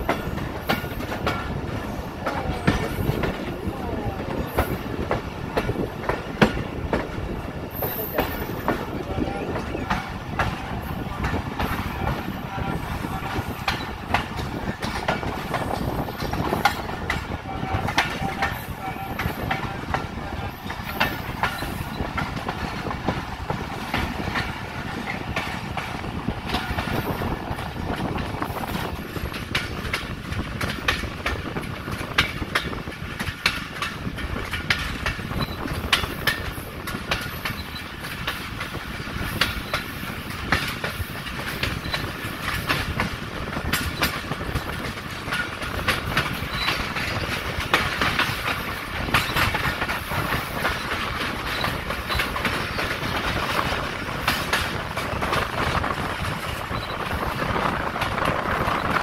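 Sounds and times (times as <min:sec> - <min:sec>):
train wheels rumbling on rails: 0:00.0 - 0:59.0
wheels clacking over rail joints: 0:00.0 - 0:59.0.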